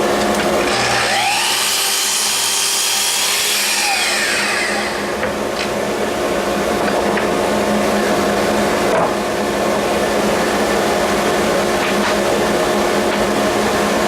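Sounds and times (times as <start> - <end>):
chop saw cutting: 0.6 - 5.2.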